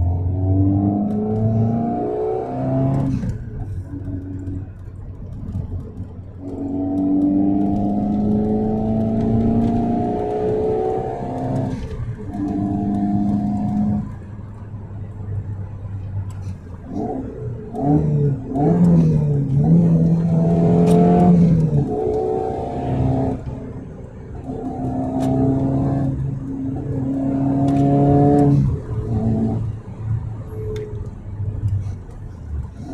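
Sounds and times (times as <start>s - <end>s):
car engine accelerating: 0.0s - 32.9s.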